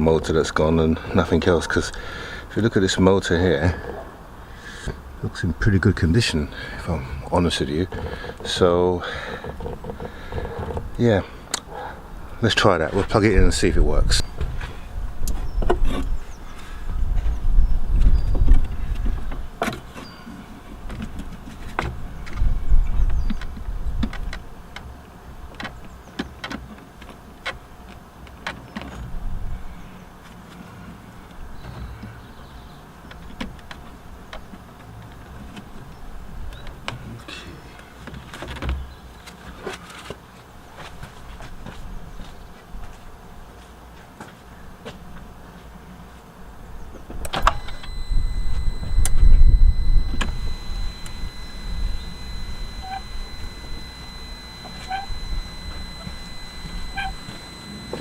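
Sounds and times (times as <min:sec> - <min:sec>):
wiper motor running with whine: 0:06.4 - 0:30.0, 0:46.9 - 0:58.0
sharp clicks: 0:47.2 - 0:58.0.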